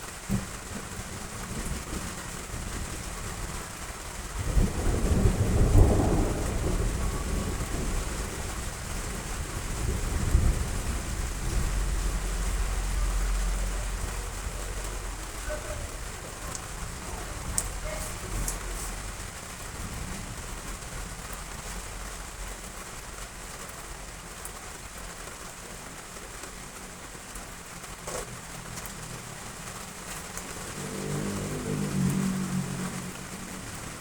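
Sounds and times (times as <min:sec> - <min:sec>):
heavy rain falling: 0:00.0 - 0:34.0
thunder rumble: 0:00.1 - 0:23.5, 0:27.7 - 0:34.0.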